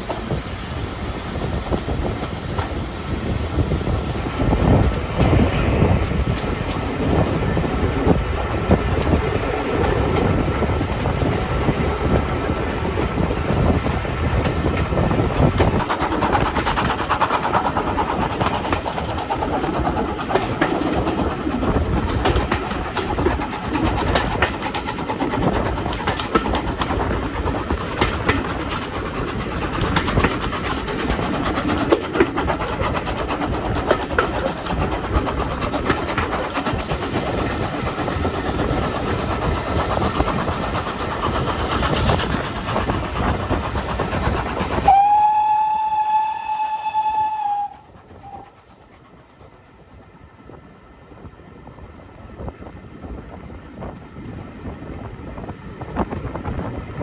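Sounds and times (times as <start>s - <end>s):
train rumbling on track: 0.0s - 57.0s
wheels clicking on rails: 0.0s - 57.0s.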